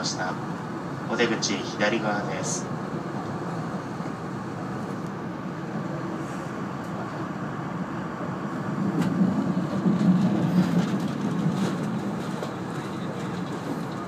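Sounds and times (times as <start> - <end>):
train rumbling: 0.0 - 14.0
wheels clicking over rail joints: 9.0 - 14.0.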